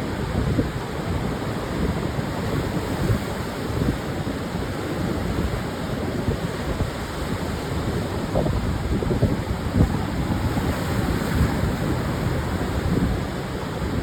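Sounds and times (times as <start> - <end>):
surf breaking on a beach: 0.0 - 14.0
wind buffeting microphone: 0.0 - 14.0.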